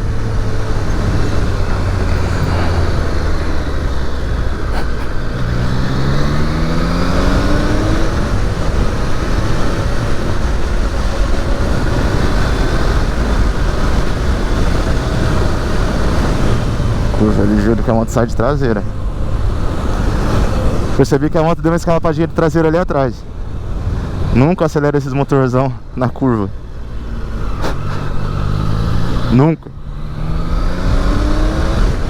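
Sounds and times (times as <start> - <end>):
motorcycle engine running: 0.0 - 21.0
wind and road noise: 0.0 - 32.0.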